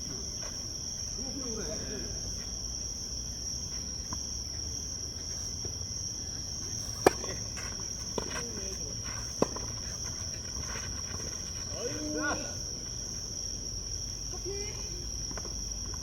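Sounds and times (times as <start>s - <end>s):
crickets chirring: 0.0s - 16.0s
tennis ball struck by racket: 6.8s - 8.7s, 9.3s - 10.0s.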